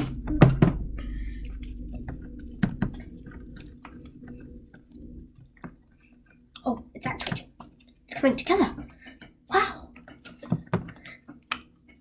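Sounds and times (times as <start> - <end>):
bump: 0.0 - 5.4.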